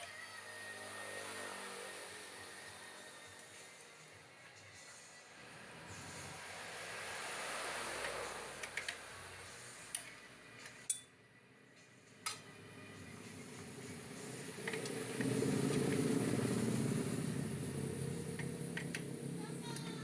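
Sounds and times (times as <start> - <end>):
steady low rumble: 15.0 - 19.8.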